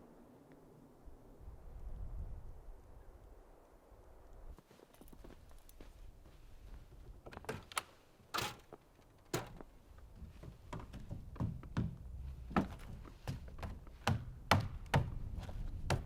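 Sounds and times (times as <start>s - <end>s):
sharp knocks and thuds: 8.4s - 15.2s.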